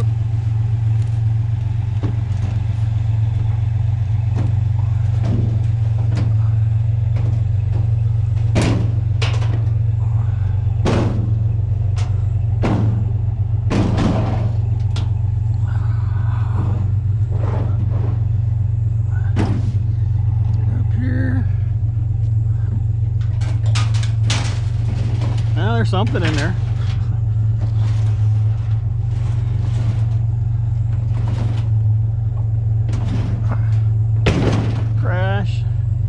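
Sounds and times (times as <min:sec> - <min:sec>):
vehicle engine droning: 0:00.0 - 0:36.0
clattering knocks: 0:00.8 - 0:15.5, 0:19.2 - 0:20.4, 0:22.1 - 0:35.0.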